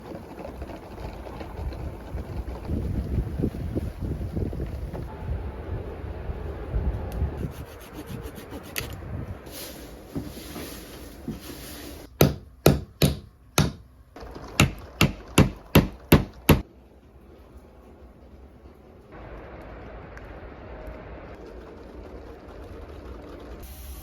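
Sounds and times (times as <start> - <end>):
rubbing and scraping on wood: 7.4 - 12.2
sharp knocks on wood: 12.2 - 13.8, 14.6 - 16.6.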